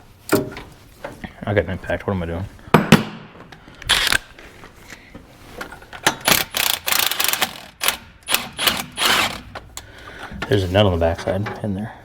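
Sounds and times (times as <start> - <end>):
wrench clicking and rattling: 3.9 - 4.2, 6.0 - 9.6.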